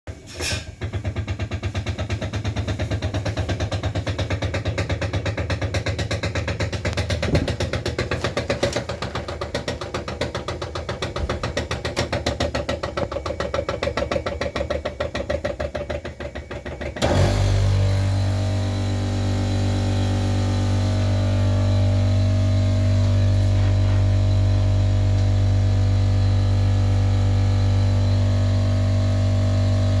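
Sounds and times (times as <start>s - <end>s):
compressor knocking: 0.7s - 29.9s
steady hum: 17.6s - 29.1s.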